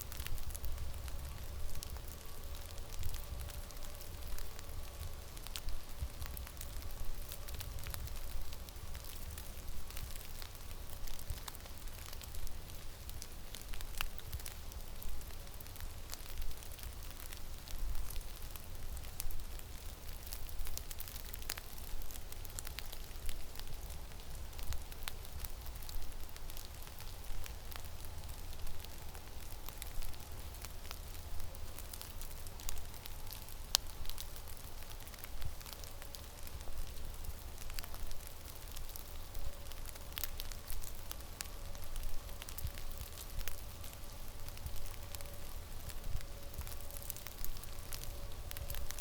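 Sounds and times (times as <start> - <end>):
crackling ticks: 0.0 - 49.0.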